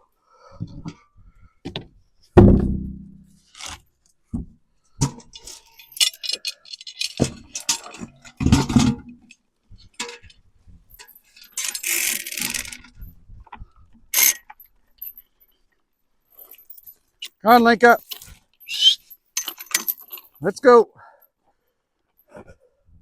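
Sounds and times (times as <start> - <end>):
jangling rattles: 5.2 - 8.8, 16.3 - 20.4.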